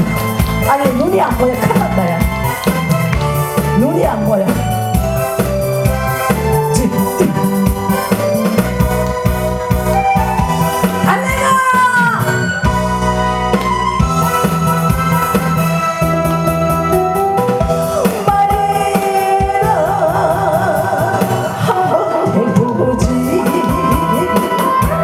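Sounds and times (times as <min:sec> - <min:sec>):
keyboard and drum backing track: 0:00.0 - 0:25.0
person singing: 0:17.8 - 0:25.0.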